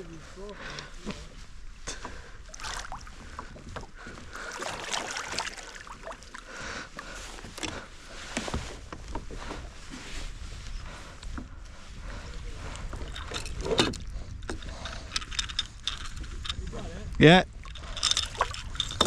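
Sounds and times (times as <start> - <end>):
water splashing around kayak: 0.2 - 19.0
wind rumble on microphone: 7.2 - 19.0.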